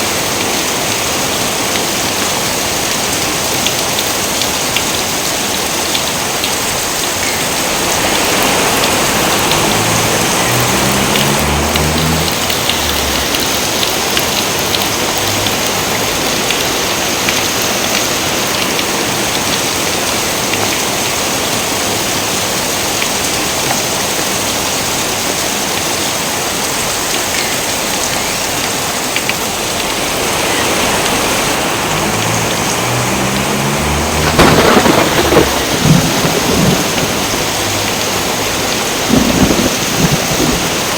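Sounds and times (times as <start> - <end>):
heavy rain hiss: 0.0 - 40.9
low rumble of thunder: 32.0 - 38.2, 39.0 - 40.9.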